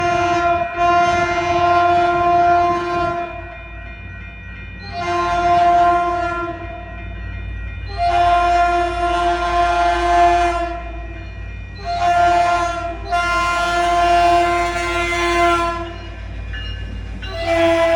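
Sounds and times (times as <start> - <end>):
train horn blasts: 0.0 - 3.6, 4.9 - 6.9, 7.9 - 11.0, 11.8 - 16.0, 17.3 - 17.9
train low rumble: 0.0 - 17.9.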